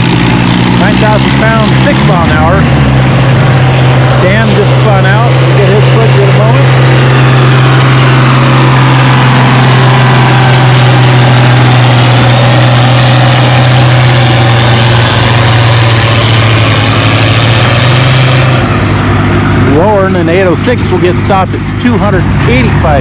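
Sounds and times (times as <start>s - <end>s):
tractor engine under full load: 0.0s - 23.0s.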